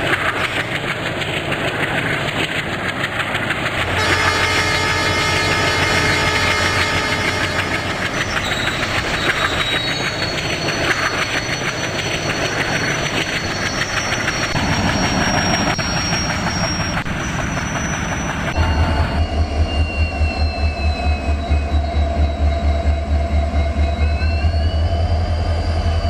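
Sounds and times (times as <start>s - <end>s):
train wheels clattering: 0.0s - 24.0s
high-pitched wheel squeal: 3.9s - 26.0s.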